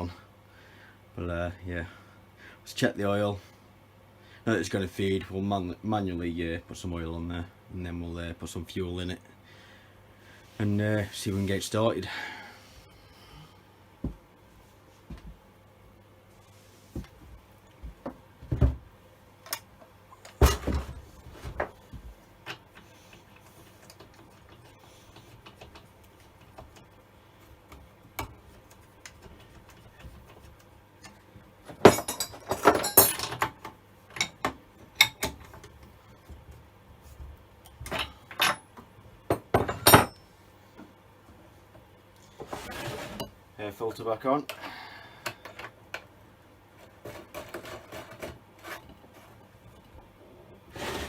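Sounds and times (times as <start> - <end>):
metal tools clinking and knocking: 31.8 - 35.4, 39.6 - 40.2.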